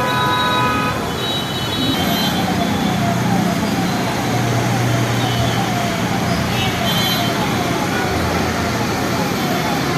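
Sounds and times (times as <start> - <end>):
vehicle horn: 0.0 - 1.8
traffic engines droning: 0.0 - 9.9
siren yelping: 2.0 - 9.9.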